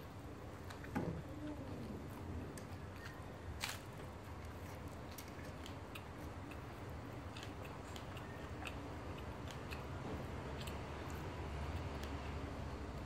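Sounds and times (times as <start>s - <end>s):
steady low hum: 0.0s - 13.0s
person chewing with mouth clicks: 4.4s - 12.4s.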